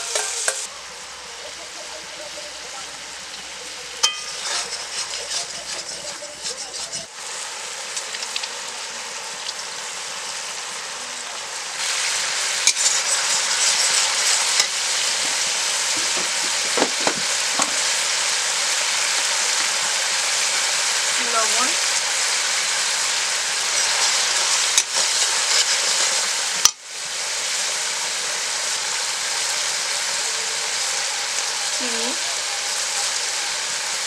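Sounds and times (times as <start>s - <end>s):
steel spatula scraping: 0.0s - 0.7s, 4.0s - 7.1s, 12.6s - 18.0s, 23.6s - 26.2s
masala sizzling: 0.0s - 34.0s.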